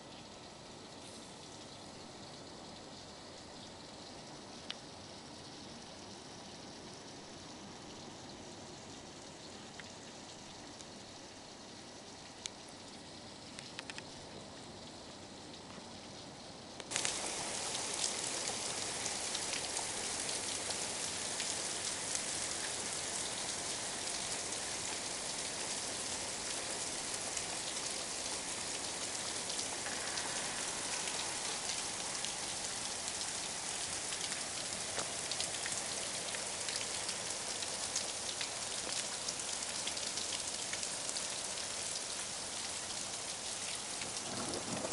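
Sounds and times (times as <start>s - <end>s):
heavy rain falling: 16.9s - 44.9s.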